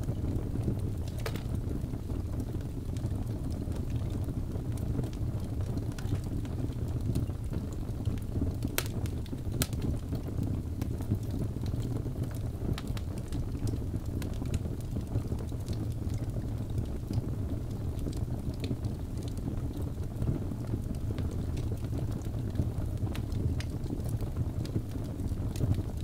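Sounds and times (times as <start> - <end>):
fire crackles: 0.0 - 26.0
fire flames rumbling: 0.0 - 26.0
sharp fire pops: 1.0 - 1.7, 8.6 - 10.0.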